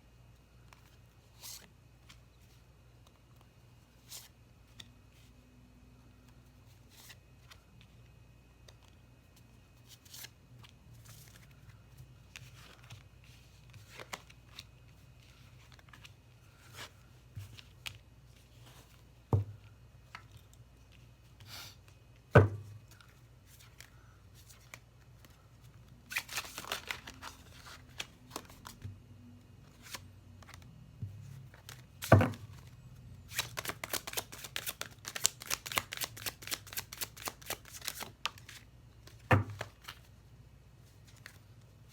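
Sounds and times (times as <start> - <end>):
cards sliding and rustling: 6.3 - 8.0, 8.6 - 19.2, 22.9 - 28.9, 29.6 - 30.6, 31.2 - 32.7, 33.3 - 40.1
cards being shuffled: 9.8 - 19.1, 22.9 - 28.9, 29.7 - 32.7, 33.3 - 40.1.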